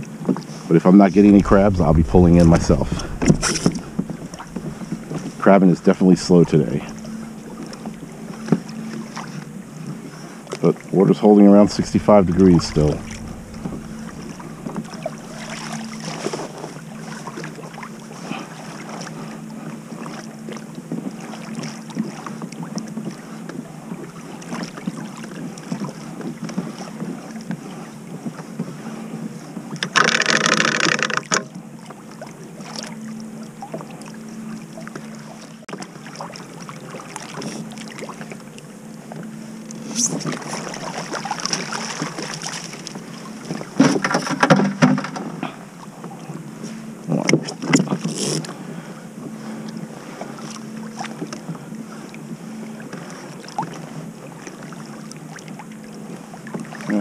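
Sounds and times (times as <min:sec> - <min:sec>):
wind on microphone: 0:01.0 - 0:09.7, 0:11.2 - 0:16.6
loud rush of noise: 0:01.1 - 0:08.5, 0:11.5 - 0:16.2
water lapping and dripping: 0:01.3 - 0:10.9, 0:11.6 - 0:27.5, 0:31.0 - 0:44.4.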